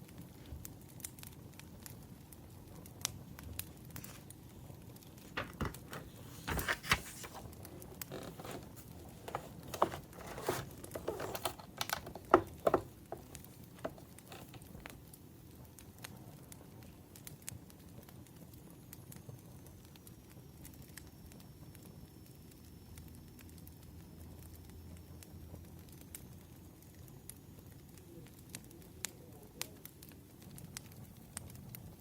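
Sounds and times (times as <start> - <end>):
wood fire crackling: 0.0 - 19.1
paper rustling and crinkling: 4.0 - 4.5, 5.2 - 15.0.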